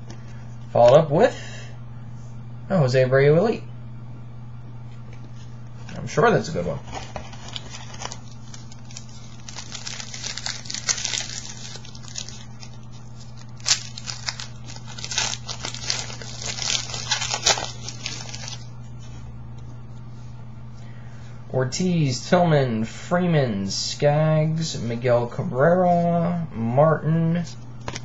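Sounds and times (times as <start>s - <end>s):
steady low hum: 0.0s - 28.0s
wrapper tearing and crinkling: 6.8s - 18.7s.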